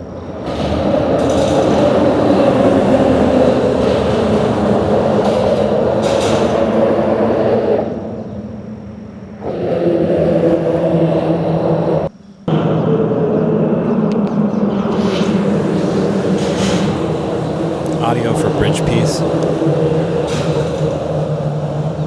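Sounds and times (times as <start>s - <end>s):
vehicles passing over bridge: 15.3s - 22.0s.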